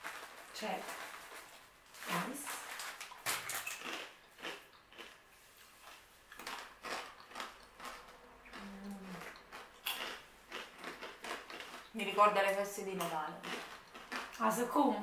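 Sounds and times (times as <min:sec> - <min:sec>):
crunchy snacks being chewed: 0:00.0 - 0:14.6
person humming: 0:08.6 - 0:09.2.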